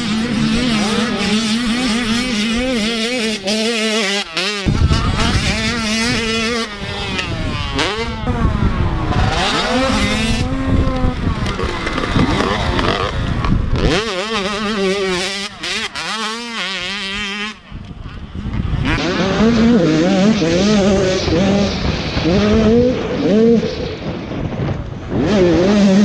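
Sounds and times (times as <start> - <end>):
motocross bike engines racing: 0.0 - 26.0
heavy low rumble: 17.6 - 26.0.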